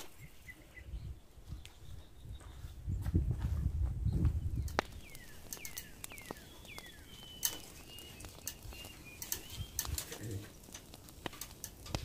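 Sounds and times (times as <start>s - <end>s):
bird whistling call: 5.0s - 9.8s.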